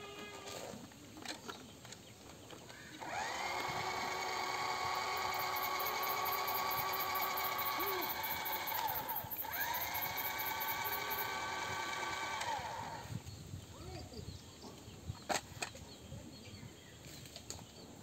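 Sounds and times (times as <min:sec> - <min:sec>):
toy motor whining: 0:03.0 - 0:13.2.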